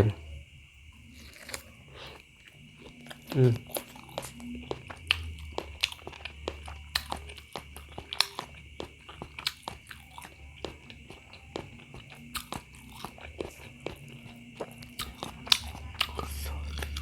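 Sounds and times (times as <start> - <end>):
chewing and biting food: 1.0 - 17.0
wet mouth clicks and smacks: 3.0 - 17.0.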